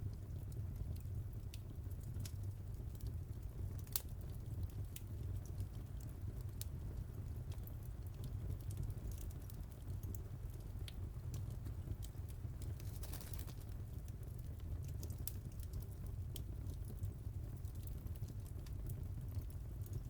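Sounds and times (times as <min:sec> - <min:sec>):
low fire rumble: 0:00.0 - 0:20.0
wood fire crackling: 0:00.0 - 0:20.0.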